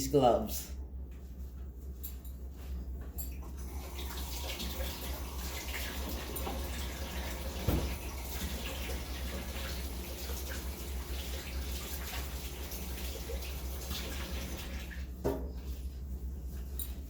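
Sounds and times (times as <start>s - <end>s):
tap water running: 3.4s - 15.8s.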